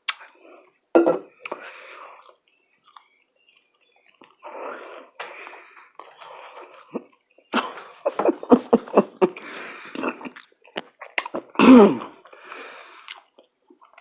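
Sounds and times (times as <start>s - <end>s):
mouth clicks: 0.0s - 0.4s, 1.0s - 7.8s, 9.4s - 14.0s
chewing food with wet smacks: 1.4s - 7.6s, 9.9s - 11.6s, 13.0s - 14.0s
throat burst like a cough: 11.3s - 12.2s.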